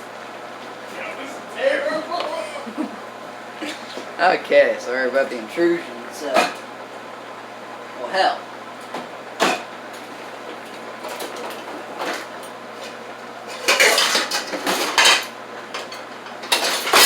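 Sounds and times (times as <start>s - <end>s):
pots and pans clattering: 9.4s - 9.7s, 11.0s - 17.0s.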